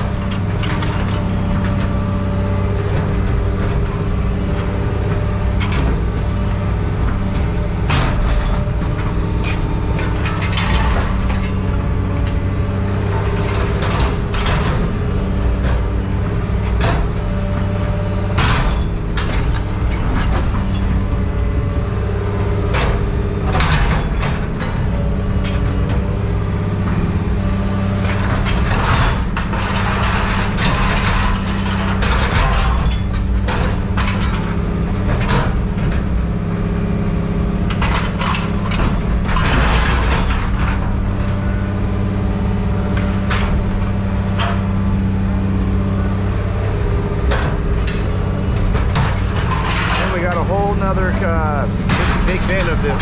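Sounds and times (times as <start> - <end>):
heavy diesel machinery running: 0.0 - 53.0
scrap metal clanking: 46.8 - 53.0.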